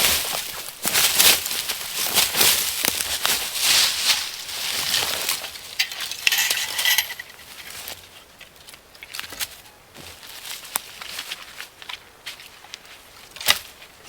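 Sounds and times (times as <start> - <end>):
dry leaves rustling and crackling: 0.0 - 14.0.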